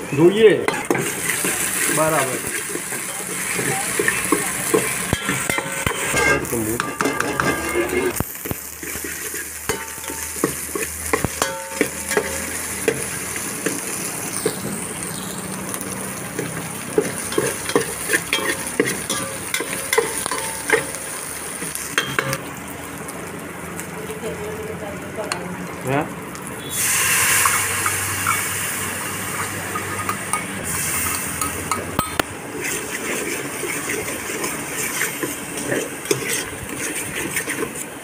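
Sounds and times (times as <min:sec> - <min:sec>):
potatoes sizzling in oil: 0:00.0 - 0:38.0
metal spoon scraping pot: 0:00.7 - 0:08.2, 0:17.2 - 0:21.0, 0:29.2 - 0:37.8.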